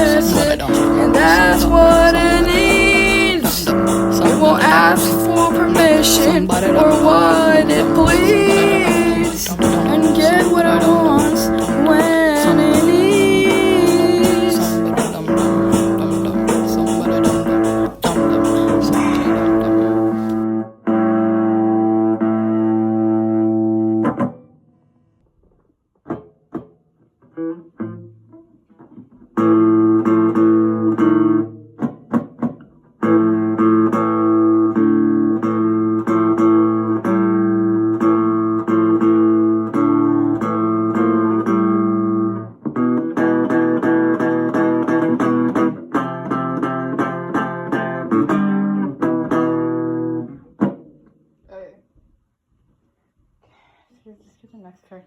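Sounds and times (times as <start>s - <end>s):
guitar playing chords: 0.0s - 24.0s.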